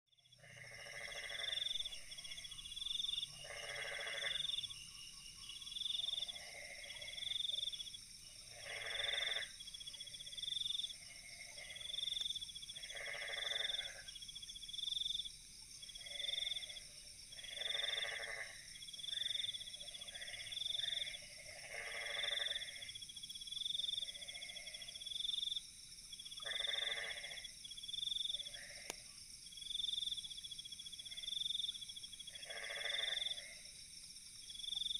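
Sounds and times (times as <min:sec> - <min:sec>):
frog calls: 0:00.2 - 0:07.8, 0:08.4 - 0:14.2, 0:15.9 - 0:23.0, 0:23.8 - 0:25.6, 0:26.3 - 0:29.1, 0:31.0 - 0:33.7
high insect drone: 0:00.3 - 0:23.2, 0:23.9 - 0:34.9.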